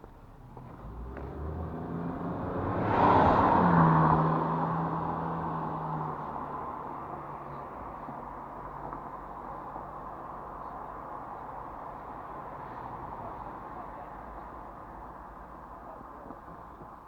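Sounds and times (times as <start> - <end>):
motor vehicle passing: 0.6 - 6.8.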